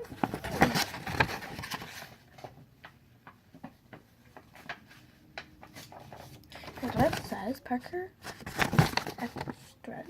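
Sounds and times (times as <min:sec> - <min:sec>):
paper rustle: 0:00.0 - 0:02.6, 0:04.3 - 0:09.7.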